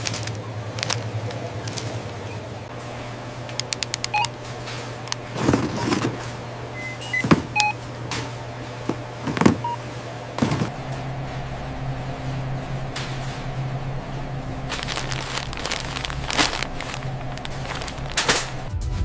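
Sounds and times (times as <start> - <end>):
steady low hum: 0.0 - 18.7
rustles: 14.7 - 18.7.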